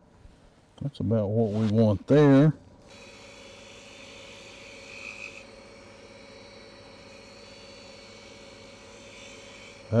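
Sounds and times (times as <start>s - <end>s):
shop machinery humming: 2.5s - 10.0s.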